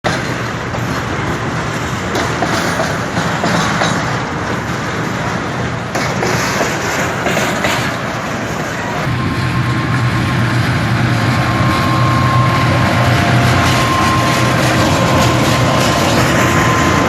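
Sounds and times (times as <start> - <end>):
train wheels on rails: 0.0 - 17.0
diesel engine drone: 8.8 - 17.0.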